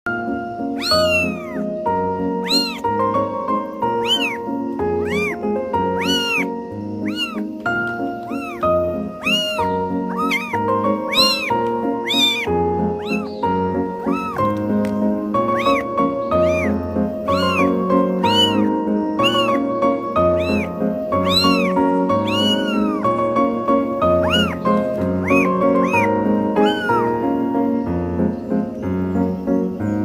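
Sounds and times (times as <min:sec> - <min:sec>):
background music of held notes: 0:00.1 - 0:30.0
kitten meowing: 0:00.7 - 0:03.2, 0:03.8 - 0:14.8, 0:15.4 - 0:27.5.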